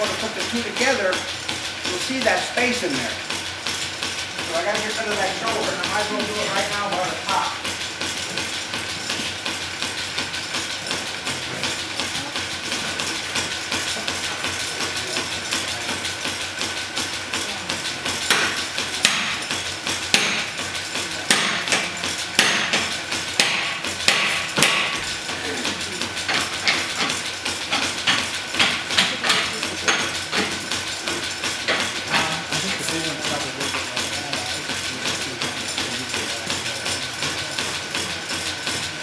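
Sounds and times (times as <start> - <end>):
hammer striking steel on anvil: 18.2 - 25.0.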